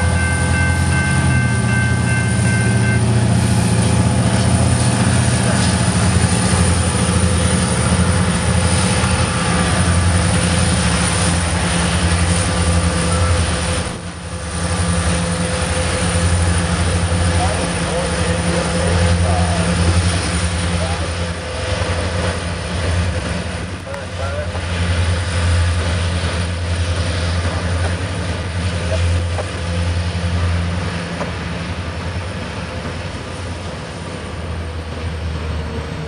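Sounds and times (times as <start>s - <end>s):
high steady tones: 0.0s - 5.2s
locomotive engine drone: 0.0s - 36.0s
rumble of rail cars: 0.0s - 36.0s.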